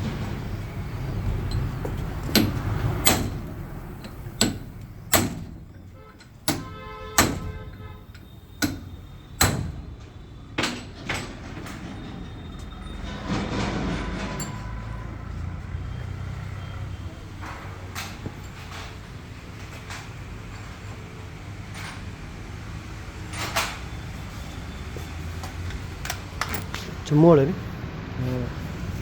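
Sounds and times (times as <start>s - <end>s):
sharp knocks: 0.0s - 7.9s.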